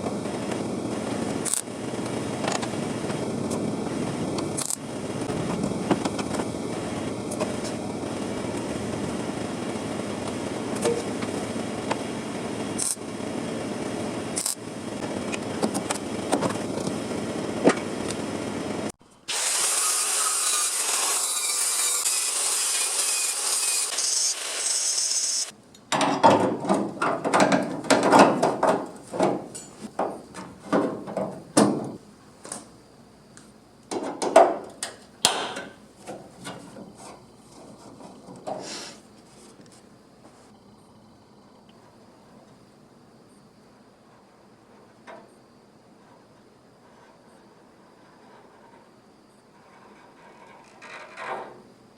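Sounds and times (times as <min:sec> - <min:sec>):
power tool running: 0:04.1 - 0:25.5
high-pitched hissing tool: 0:19.3 - 0:25.5
knocks and scrapes on metal: 0:49.6 - 0:51.6.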